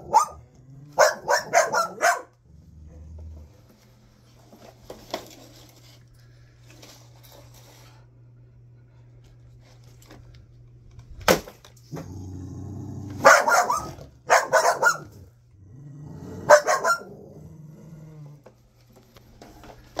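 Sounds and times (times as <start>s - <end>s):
dog barking: 0.0s - 2.4s, 13.2s - 15.3s, 16.4s - 17.2s
dog growling low: 2.4s - 3.7s, 11.9s - 13.2s, 15.0s - 18.5s.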